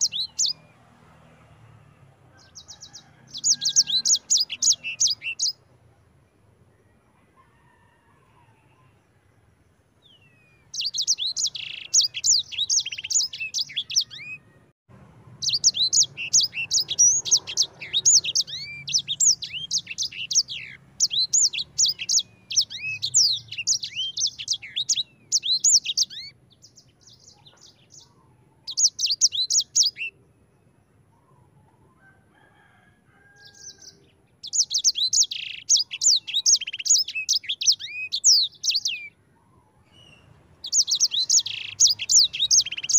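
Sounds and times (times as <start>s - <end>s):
finch singing chirps and trills: 0.0s - 0.6s, 2.5s - 5.7s, 10.0s - 14.4s, 15.4s - 30.2s, 33.4s - 39.1s, 39.8s - 42.9s.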